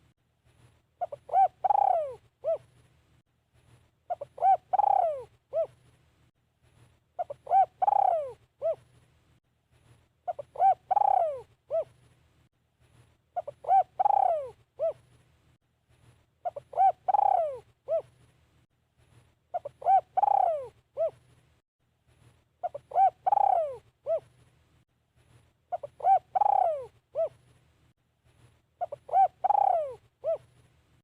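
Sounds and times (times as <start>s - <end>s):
dove cooing: 1.0s - 2.7s, 4.1s - 5.8s, 7.2s - 8.9s, 10.3s - 12.0s, 13.4s - 15.1s, 16.4s - 18.2s, 19.5s - 21.2s, 22.6s - 24.3s, 25.7s - 27.4s, 28.8s - 30.6s.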